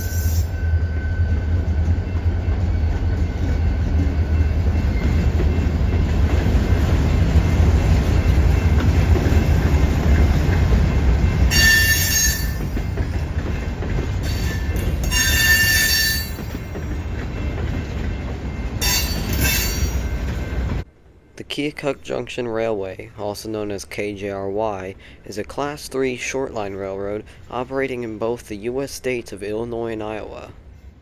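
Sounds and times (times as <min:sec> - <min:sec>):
high-pitched wheel squeal: 0:00.0 - 0:01.4, 0:11.5 - 0:12.6, 0:14.3 - 0:16.4
train rumbling past: 0:00.0 - 0:31.0.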